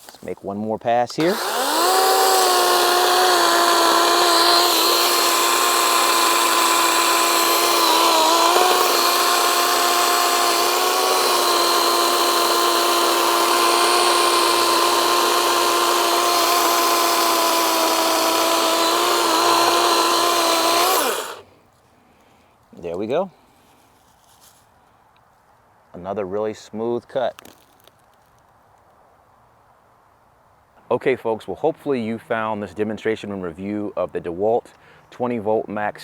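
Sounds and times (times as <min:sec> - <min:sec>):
electric chainsaw cutting log: 0:01.2 - 0:21.4.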